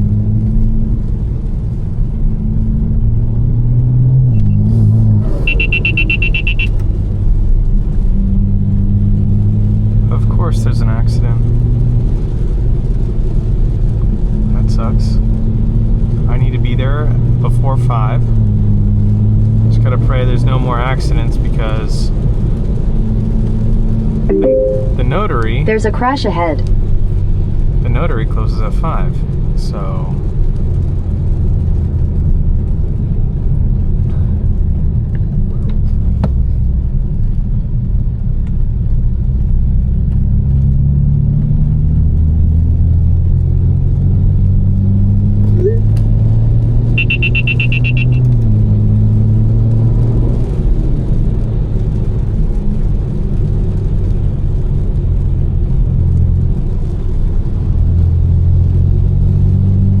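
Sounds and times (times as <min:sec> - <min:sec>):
car engine running at low revs: 0:00.0 - 1:00.0
electronic chime: 0:24.3 - 0:25.1.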